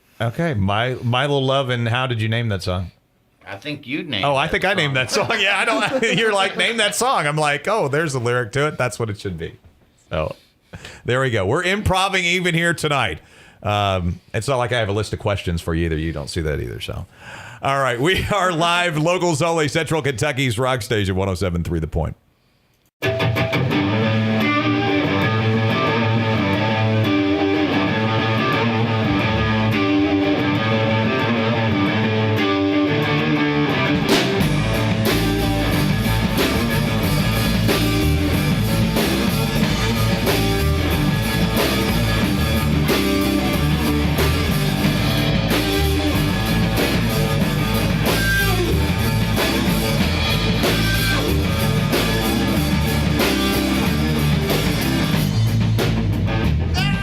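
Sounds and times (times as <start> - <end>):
electric guitar playing: 23.0 - 56.8
rock band playing: 23.0 - 57.0.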